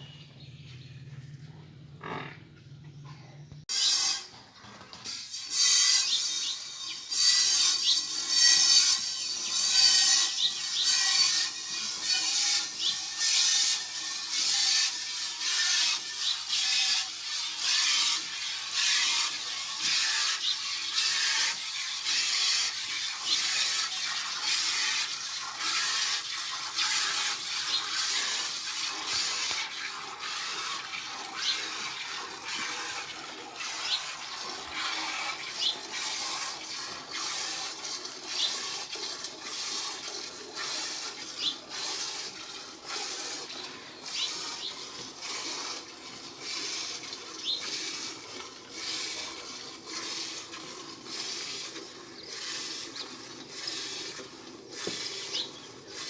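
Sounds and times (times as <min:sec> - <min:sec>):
milk squirting into a pail: 0:11.3 - 0:56.0.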